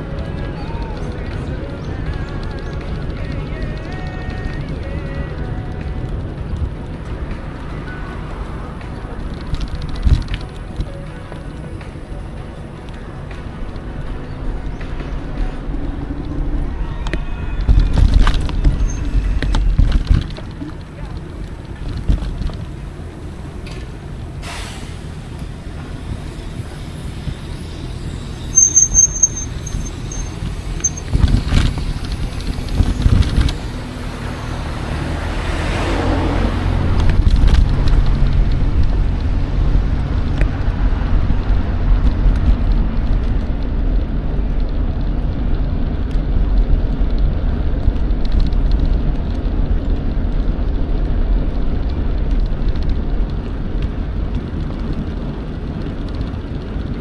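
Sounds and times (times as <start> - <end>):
bike tyre noise: 0.0 - 57.0
wind rumble on microphone: 0.0 - 57.0
high chirps: 27.6 - 31.3.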